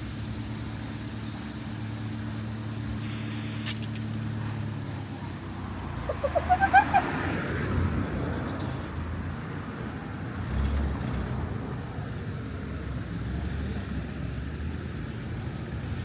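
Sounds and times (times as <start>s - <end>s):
street traffic rumble: 0.0s - 16.0s
vehicle passing: 1.8s - 16.0s.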